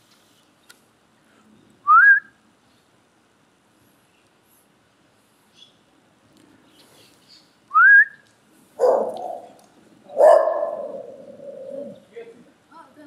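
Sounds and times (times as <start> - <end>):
dog calling: 8.8 - 12.0.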